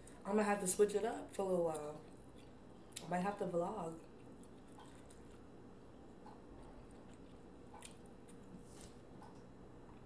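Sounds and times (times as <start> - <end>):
wet chewing: 4.0 - 5.5, 6.2 - 8.5.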